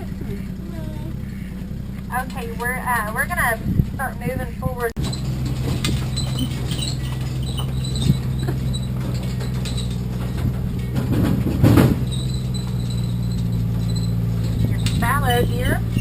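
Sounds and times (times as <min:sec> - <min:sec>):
vehicle engine humming: 0:00.0 - 0:16.0
clicks and rattles: 0:04.9 - 0:16.0.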